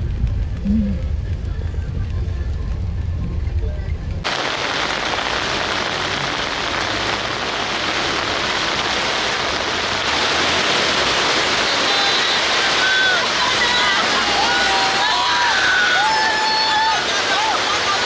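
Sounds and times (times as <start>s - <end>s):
heavy rain pouring: 4.2s - 18.0s.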